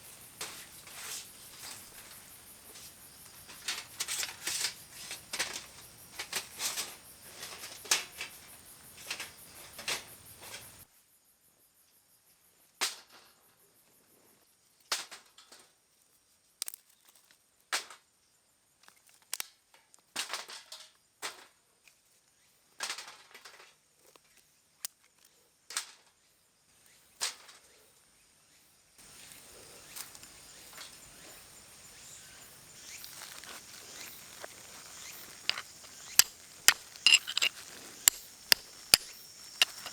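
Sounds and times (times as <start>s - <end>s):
high insect drone: 0.0s - 10.8s, 29.0s - 39.9s
sharp knocks and clicks: 35.4s - 39.9s.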